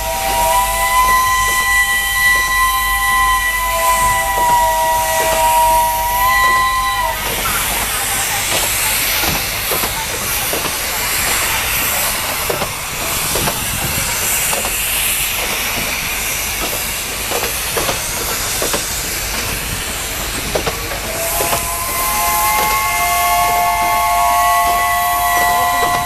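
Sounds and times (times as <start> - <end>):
wheels clicking over rail joints: 6.4 - 22.8.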